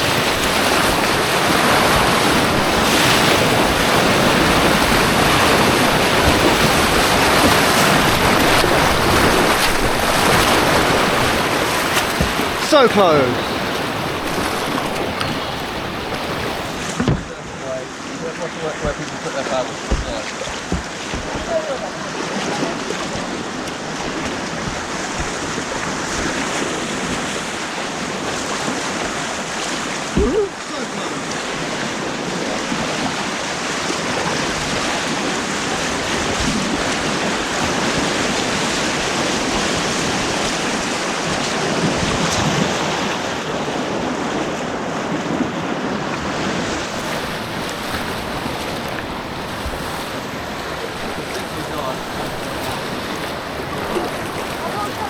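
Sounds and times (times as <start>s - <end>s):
rushing white water: 0.0s - 55.0s
sharp knock: 19.9s - 21.5s.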